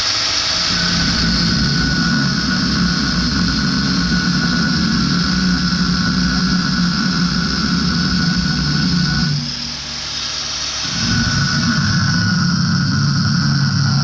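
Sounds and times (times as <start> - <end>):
power tool motor whining: 0.0 - 14.0.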